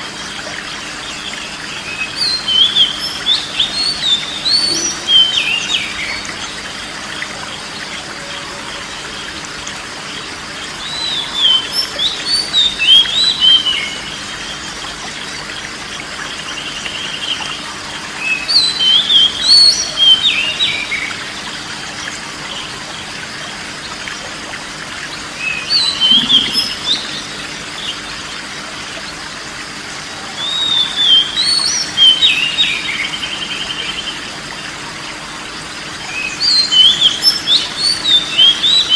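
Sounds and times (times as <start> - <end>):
bird singing whistled phrases: 25.4 - 27.4, 30.4 - 34.0.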